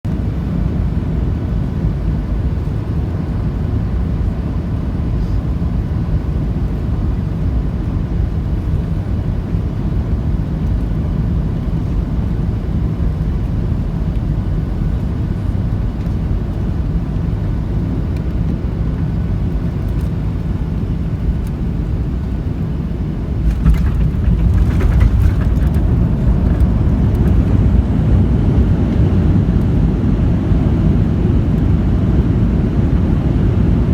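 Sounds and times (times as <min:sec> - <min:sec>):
airliner cabin engine rumble: 0:00.1 - 0:33.9
light rattling: 0:23.3 - 0:27.9.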